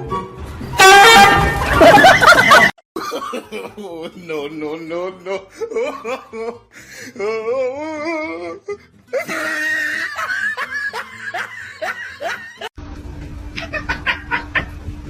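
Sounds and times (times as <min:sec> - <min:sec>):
laughter in rising bursts: 0:01.4 - 0:02.7, 0:09.2 - 0:12.7, 0:13.6 - 0:14.8.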